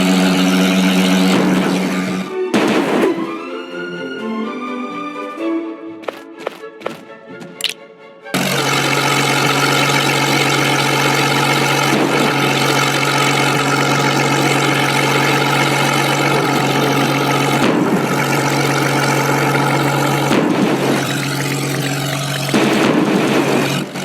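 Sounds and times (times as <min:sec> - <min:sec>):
engine running: 0:00.0 - 0:04.0, 0:05.5 - 0:24.0.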